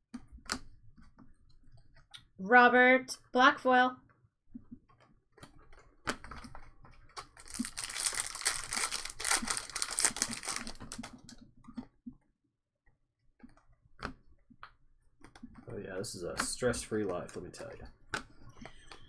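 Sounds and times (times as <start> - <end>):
cards being handled: 7.2 - 11.2
foil wrapper tearing and crinkling: 7.2 - 11.2.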